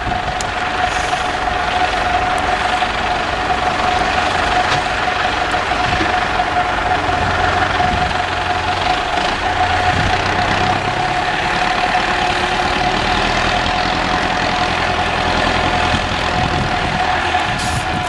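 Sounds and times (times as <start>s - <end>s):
steady whine: 0.0s - 12.9s
truck diesel engine idling: 0.0s - 18.0s.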